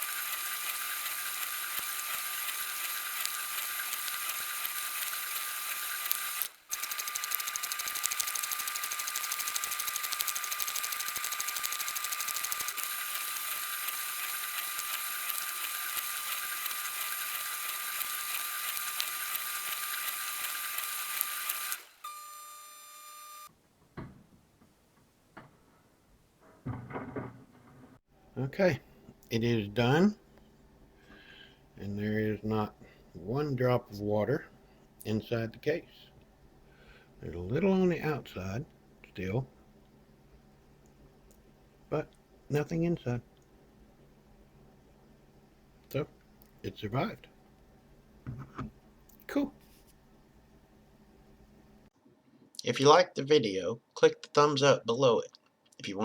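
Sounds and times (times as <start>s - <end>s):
dishwasher whine: 26.4s - 28.0s.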